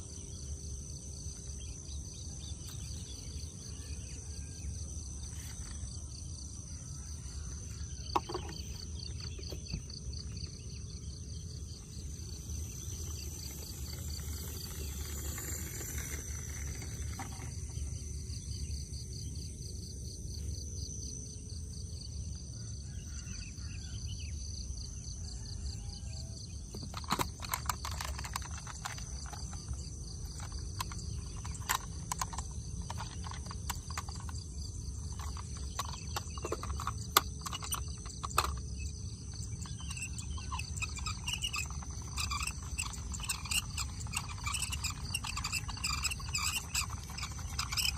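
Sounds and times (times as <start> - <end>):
crickets chirping: 0.0 - 47.9
sharp clicks and knocks: 8.0 - 10.1, 26.7 - 47.9.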